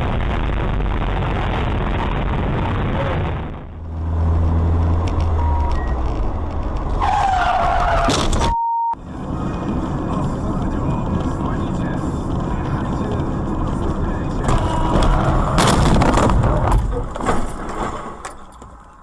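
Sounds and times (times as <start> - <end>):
car engine low hum: 0.0 - 7.1, 9.0 - 17.0
road and engine noise: 0.0 - 19.0
electronic beep: 5.4 - 6.0, 8.4 - 9.0.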